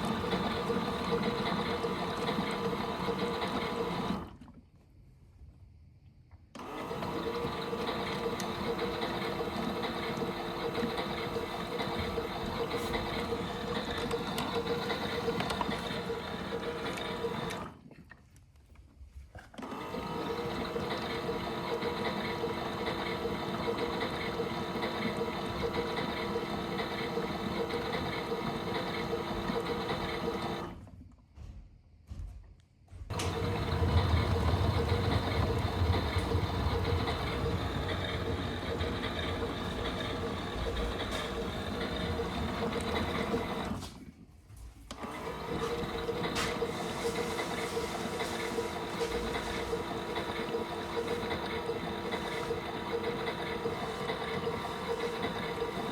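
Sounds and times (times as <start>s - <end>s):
washing machine drum motor humming: 0.0s - 4.4s, 6.6s - 17.8s, 19.7s - 30.8s, 33.1s - 44.0s, 44.9s - 55.9s
washing machine drum turning: 33.1s - 43.8s.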